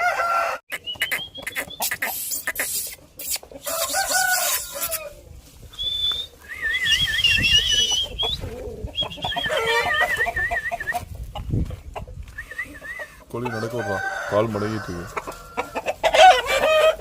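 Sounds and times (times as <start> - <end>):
rooster crowing: 0.0 - 0.6, 3.6 - 5.2, 13.4 - 17.0
chickens clucking: 0.0 - 17.0
warbling high-pitched calls: 0.7 - 5.1, 5.8 - 11.0.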